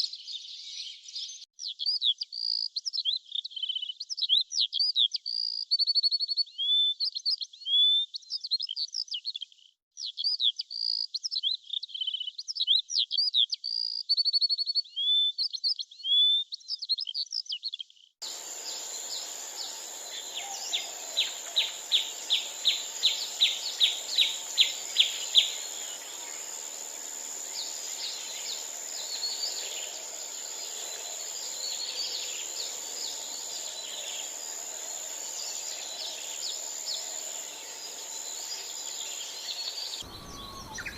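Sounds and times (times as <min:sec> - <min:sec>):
small birds chirping: 0:00.0 - 0:40.9
background hiss: 0:18.2 - 0:40.9
bird trilling: 0:18.3 - 0:34.1, 0:38.6 - 0:40.9.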